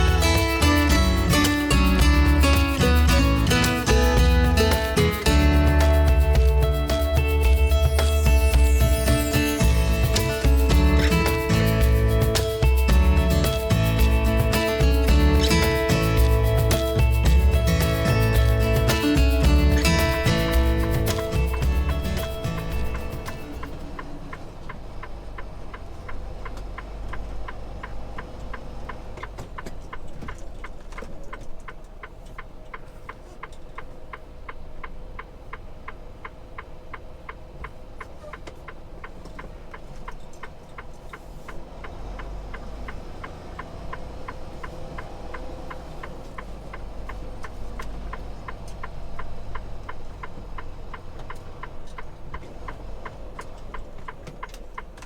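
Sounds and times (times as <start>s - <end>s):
truck engine idling: 0.0s - 30.8s
flasher relay ticking: 0.0s - 55.0s.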